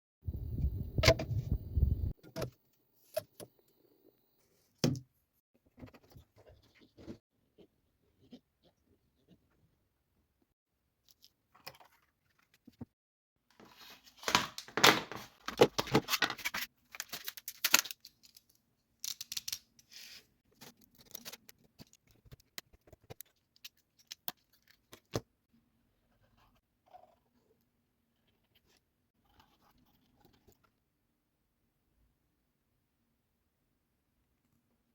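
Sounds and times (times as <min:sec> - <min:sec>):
crinkling handling noise: 0:13.6 - 0:25.2.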